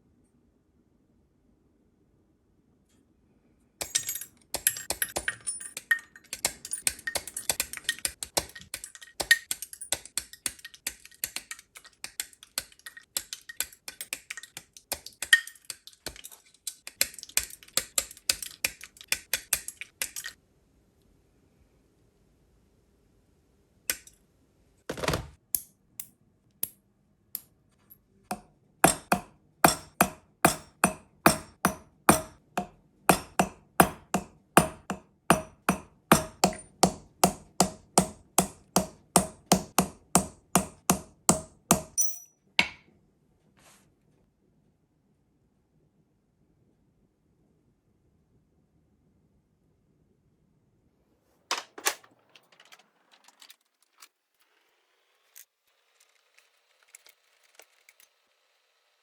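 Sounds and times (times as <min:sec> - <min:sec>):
metal clicking and scraping: 0:03.8 - 0:20.4
hammer tapping: 0:28.3 - 0:42.8.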